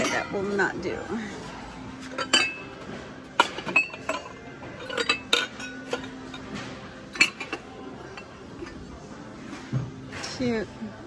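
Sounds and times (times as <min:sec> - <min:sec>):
ceramic mugs clinking: 0:02.1 - 0:02.8, 0:03.4 - 0:06.4, 0:07.0 - 0:08.9.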